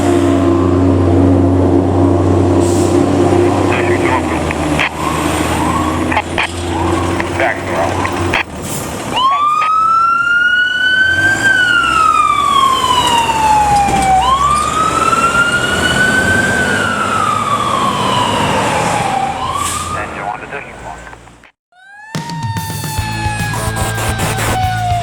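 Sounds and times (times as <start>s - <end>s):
vehicle engine humming low: 0.0s - 9.9s, 19.0s - 21.5s
fire truck siren wailing: 0.0s - 25.0s.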